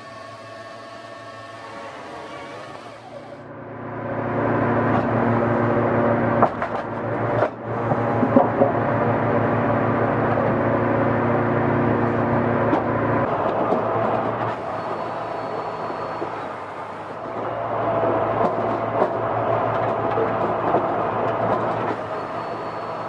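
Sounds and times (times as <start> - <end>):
motor running: 0.0 - 3.5, 13.3 - 23.0
knocks and clatters: 6.4 - 8.9, 18.3 - 22.0.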